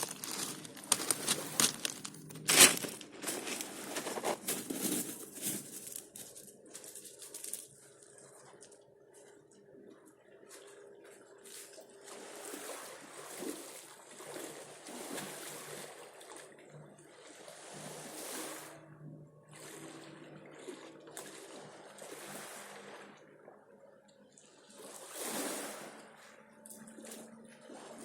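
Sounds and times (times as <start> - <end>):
sea water splashing in small waves: 10.4 - 23.8, 24.4 - 28.0.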